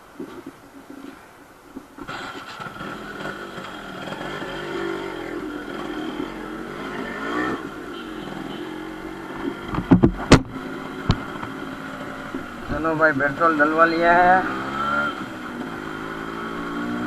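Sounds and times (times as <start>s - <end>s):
sharp loud knocks or pops: 9.7s - 11.2s.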